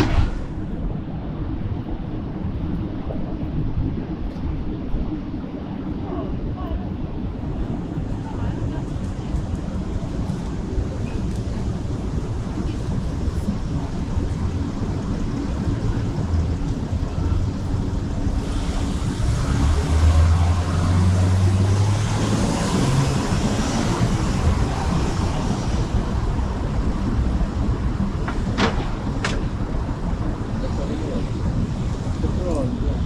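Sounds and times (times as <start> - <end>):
low rumble of traffic: 0.0 - 33.0
heavy vehicle engine passing: 17.3 - 26.7.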